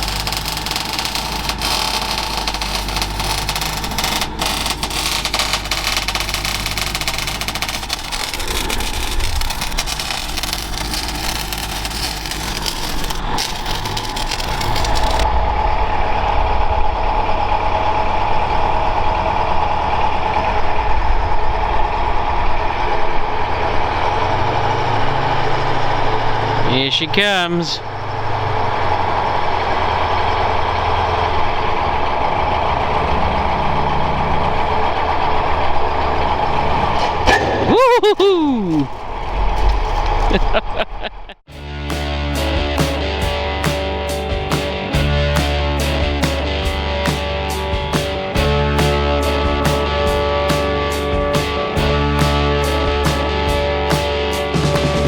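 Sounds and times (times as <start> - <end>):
clatter of fine ticks: 0.0 - 15.2
tank engine droning: 0.0 - 37.7.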